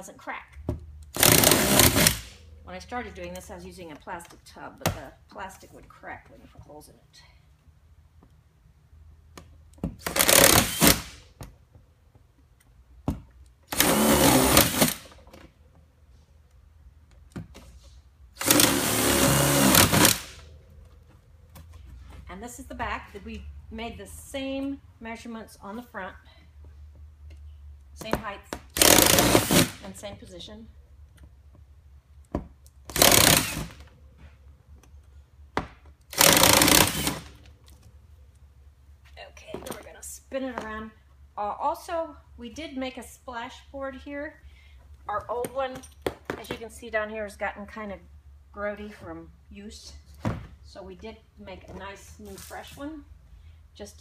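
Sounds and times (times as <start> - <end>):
electric drill boring through plastic: 18.4 - 20.3, 36.1 - 37.3.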